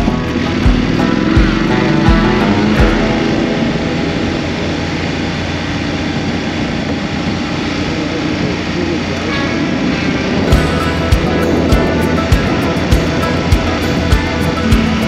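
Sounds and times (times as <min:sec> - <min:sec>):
low thumps: 0:00.0 - 0:06.9, 0:10.5 - 0:15.0
motorcycle engine running: 0:00.0 - 0:09.5, 0:10.5 - 0:15.0
road and wind noise: 0:00.0 - 0:15.0.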